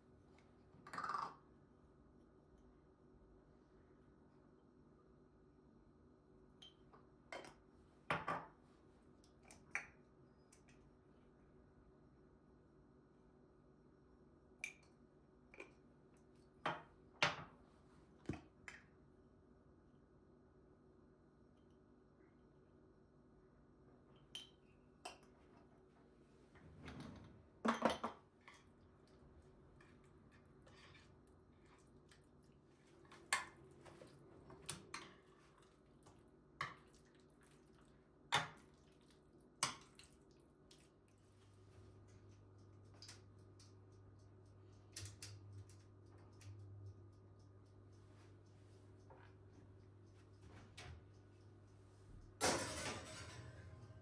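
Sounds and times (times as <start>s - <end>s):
kitchenware clinking and knocking: 52.4s - 54.0s.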